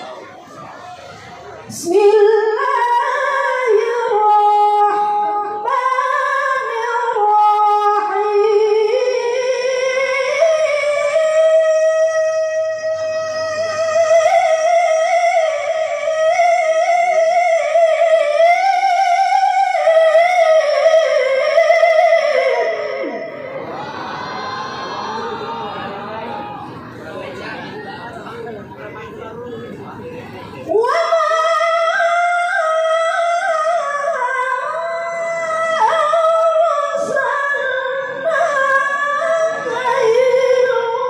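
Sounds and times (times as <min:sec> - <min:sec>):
woman reciting melodically: 0:01.7 - 0:23.4, 0:30.5 - 0:41.0.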